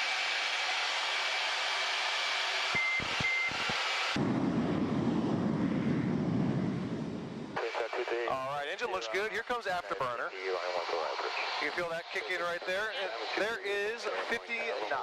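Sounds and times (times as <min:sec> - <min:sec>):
short beeps: 0:02.8 - 0:03.6
deep rumble: 0:04.2 - 0:08.0.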